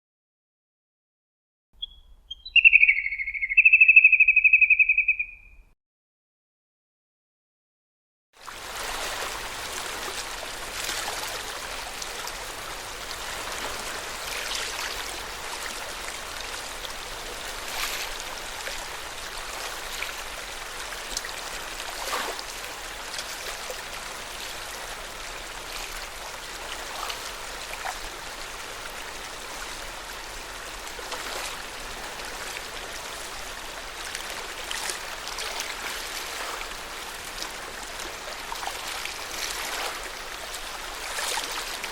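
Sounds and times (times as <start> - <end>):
water splashing at shore: 8.4 - 41.9.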